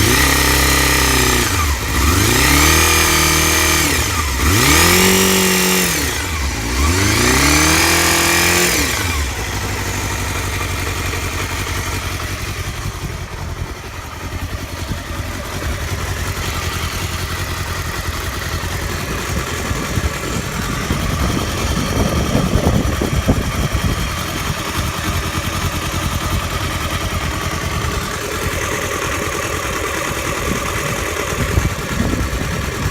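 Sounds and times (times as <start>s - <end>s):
motorcycle engine revving and idling: 0.0s - 32.9s
strange engine noise: 0.0s - 32.9s.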